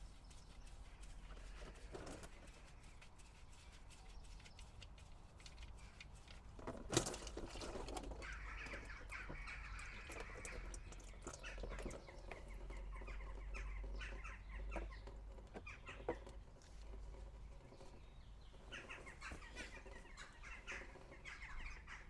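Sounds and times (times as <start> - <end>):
bird calls: 7.0 - 22.0.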